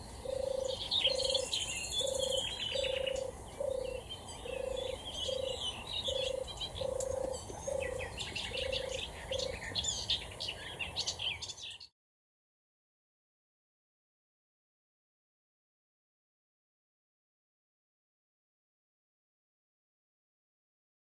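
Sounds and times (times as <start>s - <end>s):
songbirds chirping and trilling: 0.0s - 11.9s
dove purring coos: 0.2s - 9.7s.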